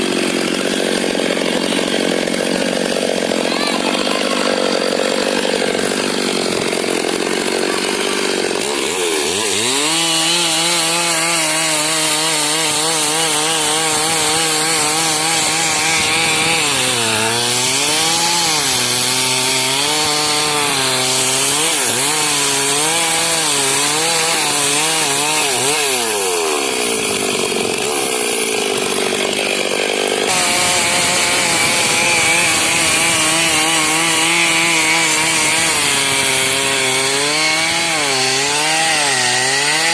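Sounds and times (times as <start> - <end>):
chainsaw cutting timber: 0.0 - 39.9.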